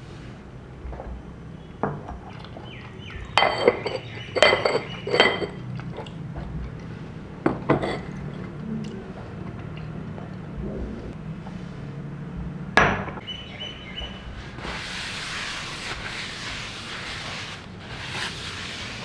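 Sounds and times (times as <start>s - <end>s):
dishes and utensils clinking: 1.8s - 10.6s.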